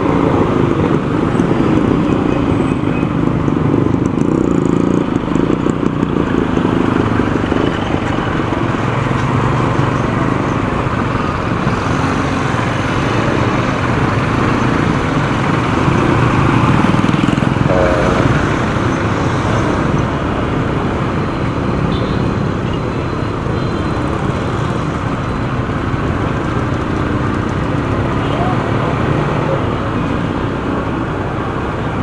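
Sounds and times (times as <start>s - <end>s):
passing vehicles: 0.0s - 32.0s
motorcycle engine: 13.2s - 21.2s.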